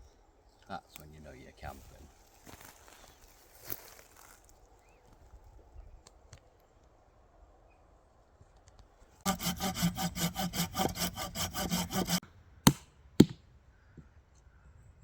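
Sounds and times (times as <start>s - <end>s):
hand saw cutting wood: 9.3s - 12.8s.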